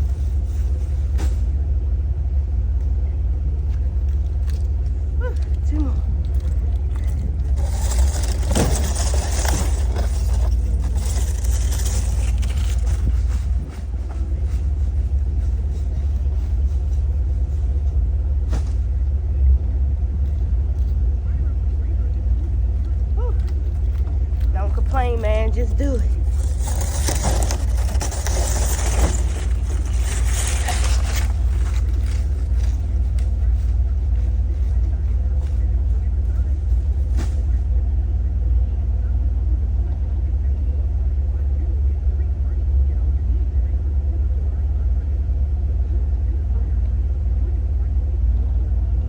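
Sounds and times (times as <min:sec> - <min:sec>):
light rattling and scraping: 0:00.0 - 0:01.7, 0:02.7 - 0:37.9
car engine and road rumble: 0:00.0 - 0:49.0.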